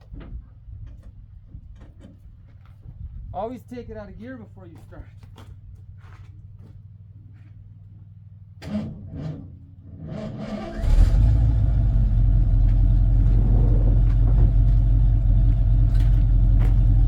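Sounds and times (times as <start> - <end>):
truck engine starting and running: 8.6 - 17.0.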